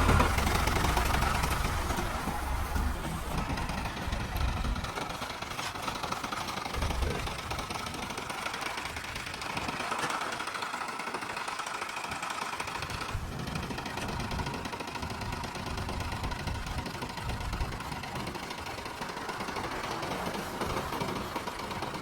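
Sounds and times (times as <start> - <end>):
diesel engine clattering: 0.0 - 22.0.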